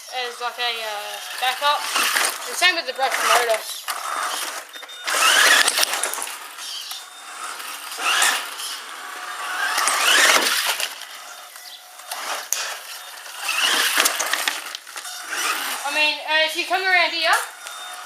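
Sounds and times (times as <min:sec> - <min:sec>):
electric motor whining: 0:00.0 - 0:18.0
rattle of drivetrain and tyres: 0:07.8 - 0:15.9.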